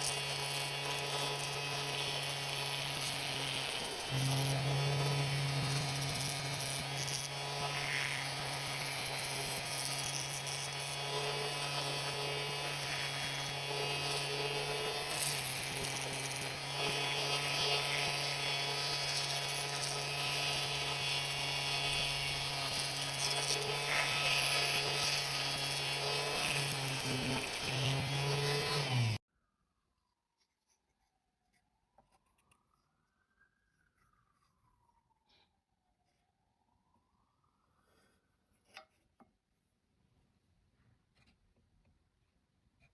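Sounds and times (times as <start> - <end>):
electric power tool motor humming: 0.0 - 29.2.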